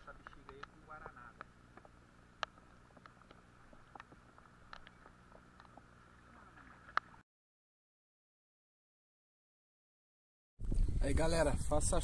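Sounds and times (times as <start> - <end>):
faint steady hum: 0.0 - 7.2
raindrops ticking on camera housing: 0.0 - 7.2.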